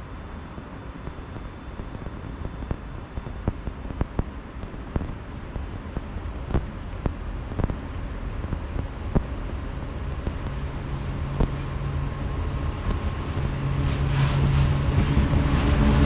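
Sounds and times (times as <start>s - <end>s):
freight train rumbling: 0.0s - 16.0s
train clanks and knocks: 3.2s - 16.0s.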